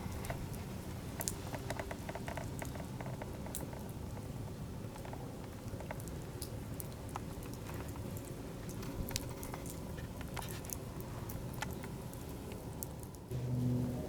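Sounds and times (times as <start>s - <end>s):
low steady rumble: 6.6s - 14.0s.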